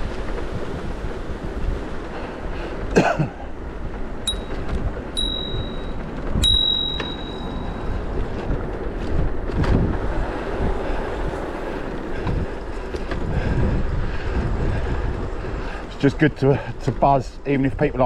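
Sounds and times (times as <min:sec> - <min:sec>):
bicycle riding noise: 0:00.0 - 0:18.0
wind rush on microphone: 0:00.0 - 0:18.0
bicycle bell ding: 0:04.3 - 0:08.4.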